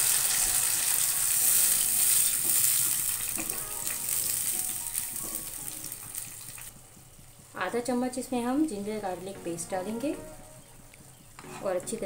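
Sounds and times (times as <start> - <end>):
paste sizzling in hot oil: 0.0 - 6.7.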